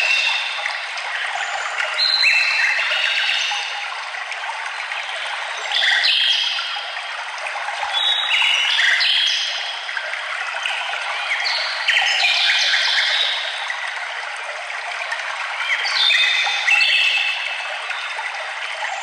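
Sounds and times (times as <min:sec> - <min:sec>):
running water rushing: 0:00.0 - 0:19.0.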